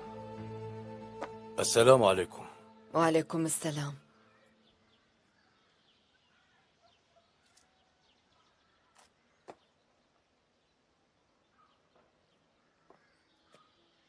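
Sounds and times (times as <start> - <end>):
bird chirps: 3.6 - 14.0.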